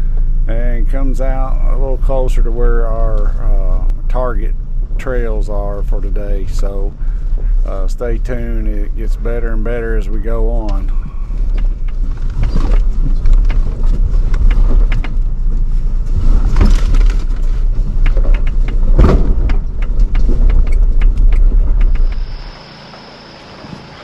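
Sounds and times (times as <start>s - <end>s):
off-road vehicle engine rumble: 0.0s - 24.0s
vehicle knocks and rattles: 4.1s - 22.4s.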